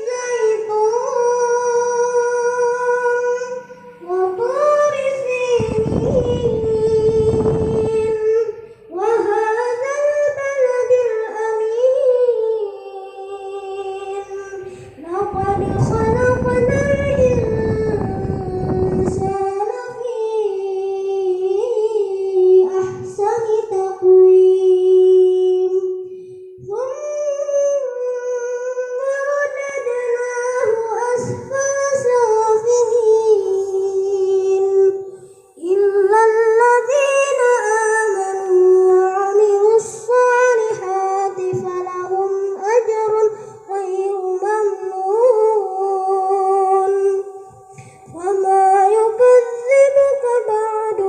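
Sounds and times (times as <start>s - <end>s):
boy chanting recitation: 0.0s - 51.0s
low rumble: 5.5s - 8.3s, 15.0s - 19.6s.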